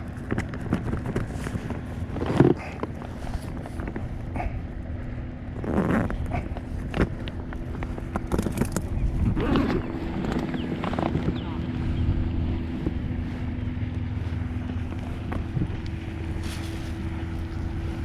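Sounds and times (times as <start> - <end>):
gear knocking and clattering: 0.0 - 4.2, 5.6 - 11.4
water: 0.0 - 18.0
wind rumble: 0.0 - 18.0.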